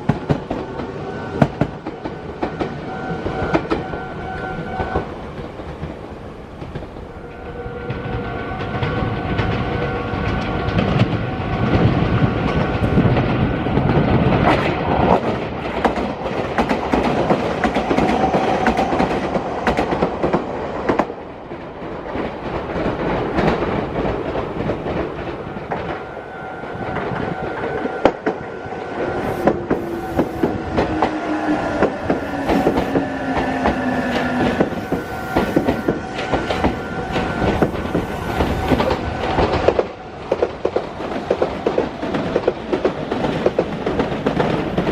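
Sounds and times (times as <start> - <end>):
train wheels clattering over rails: 0.0 - 44.9
train motor whine: 25.9 - 40.2.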